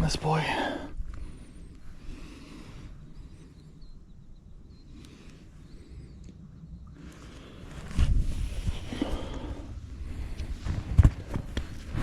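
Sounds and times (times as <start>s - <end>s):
low outdoor rumble: 0.0s - 12.0s
faint bird chirps: 2.6s - 7.1s.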